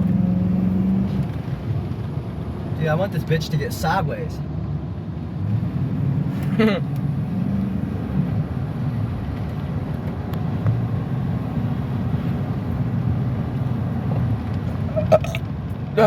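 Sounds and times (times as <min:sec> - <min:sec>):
road noise: 0:00.0 - 0:16.0
short vocal sound: 0:14.9 - 0:15.4.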